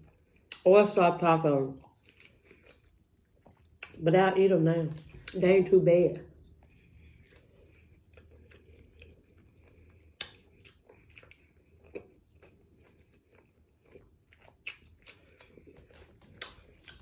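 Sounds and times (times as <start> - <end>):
person chewing wetly: 1.6 - 4.0, 4.9 - 5.4, 6.4 - 17.0.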